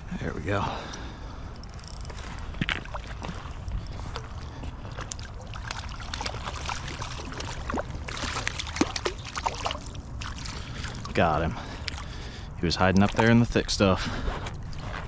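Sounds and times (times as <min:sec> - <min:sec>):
water splashing: 0:04.2 - 0:13.6.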